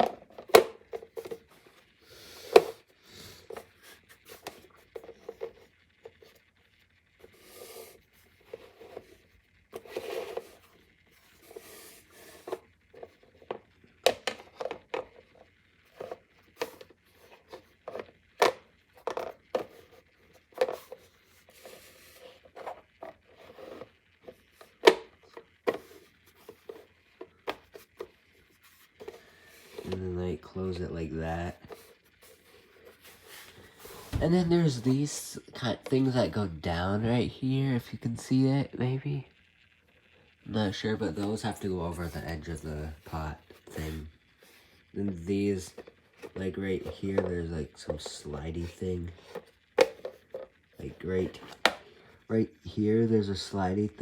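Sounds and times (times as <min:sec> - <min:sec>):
plastic scraping on plastic: 0:00.0 - 0:06.6, 0:07.2 - 0:36.8, 0:40.7 - 0:52.1.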